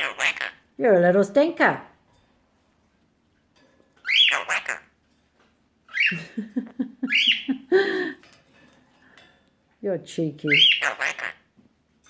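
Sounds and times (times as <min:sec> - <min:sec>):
parakeet chattering: 0:00.0 - 0:00.7, 0:04.0 - 0:05.0, 0:05.9 - 0:06.2, 0:07.1 - 0:07.6, 0:10.4 - 0:11.5.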